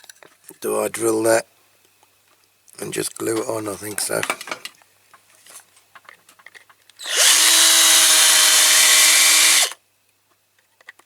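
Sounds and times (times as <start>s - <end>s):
electric drill drilling into metal: 7.0s - 9.8s.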